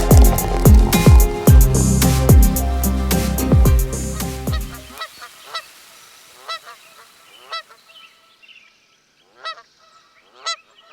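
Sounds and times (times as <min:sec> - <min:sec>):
music: 0:00.0 - 0:05.0.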